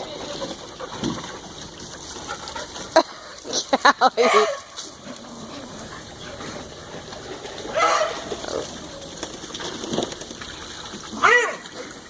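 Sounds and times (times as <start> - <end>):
dog barking: 4.2 - 4.7, 7.7 - 8.2, 11.2 - 11.6.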